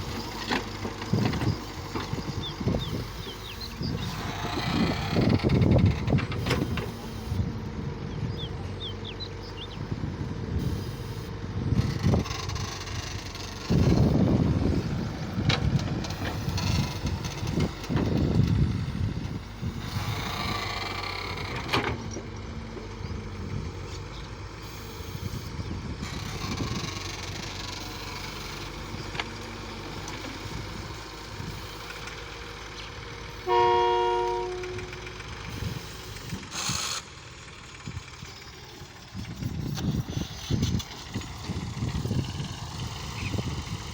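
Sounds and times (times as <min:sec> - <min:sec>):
tractor engines running: 0:00.0 - 0:43.9
horn: 0:33.5 - 0:34.8.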